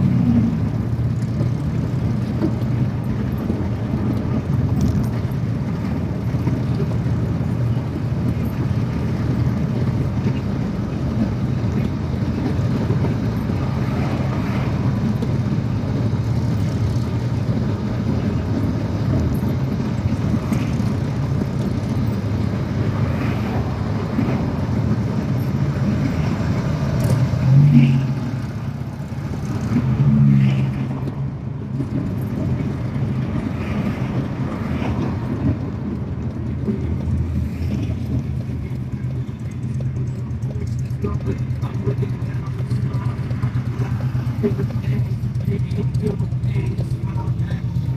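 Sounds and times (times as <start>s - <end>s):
motorcycle engine rumble: 0.0s - 47.9s
road and wind noise: 0.0s - 47.9s.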